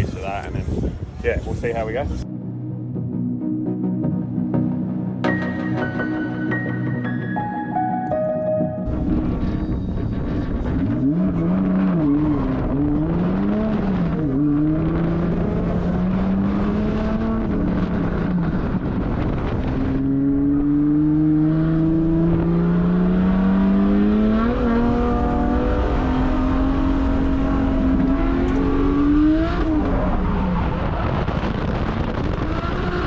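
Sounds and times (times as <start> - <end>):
car engine revving: 8.8 - 33.0.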